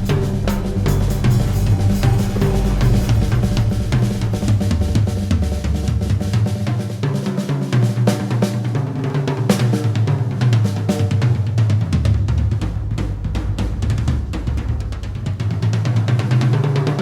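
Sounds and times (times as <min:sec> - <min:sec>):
pitched soundscape backing: 0:00.0 - 0:06.9
drum kit played busily: 0:00.0 - 0:17.0.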